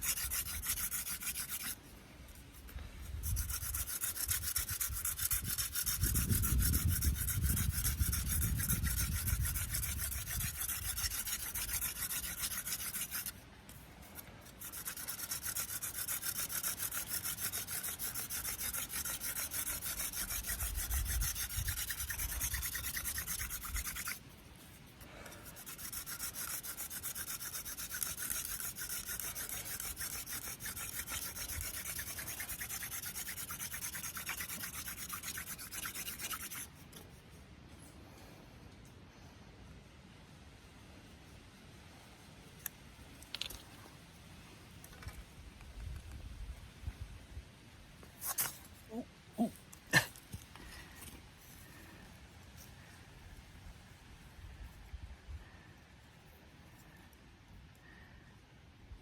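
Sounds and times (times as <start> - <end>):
spindle rubbing on wood: 0.0 - 1.8, 2.5 - 37.0.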